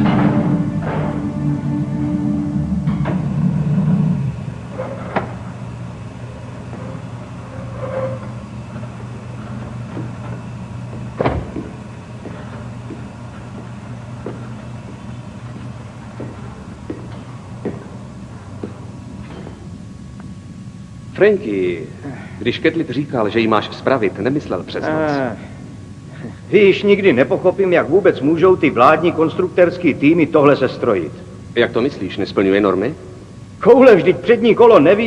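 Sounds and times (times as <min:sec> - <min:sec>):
musical sting with low drums: 0:00.0 - 0:04.5
steady low hum: 0:00.0 - 0:35.0.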